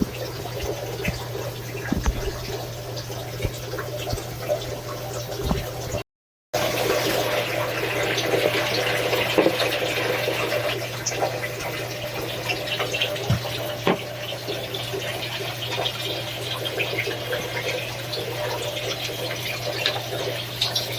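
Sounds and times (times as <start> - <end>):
knocks and splashes: 0.0 - 2.7, 5.3 - 6.0, 13.2 - 14.2
shower water running: 0.0 - 6.0, 6.6 - 20.9.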